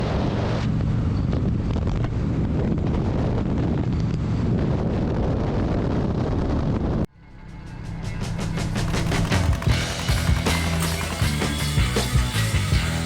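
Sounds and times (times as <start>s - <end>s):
wind buffeting microphone: 0.0s - 7.1s
motorcycle engine running: 7.6s - 13.0s.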